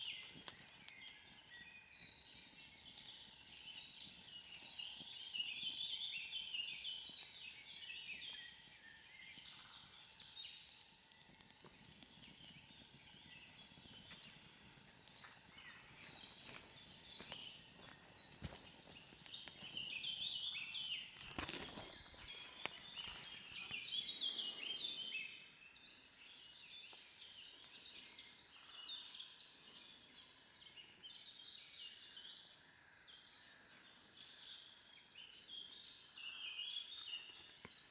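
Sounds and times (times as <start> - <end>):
sharp clicks: 0.0 - 15.5
small birds chirping: 0.0 - 37.9.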